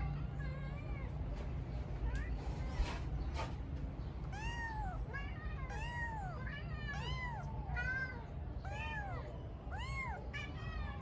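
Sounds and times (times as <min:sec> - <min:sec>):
kitten meowing: 0:04.3 - 0:07.6, 0:08.6 - 0:10.3.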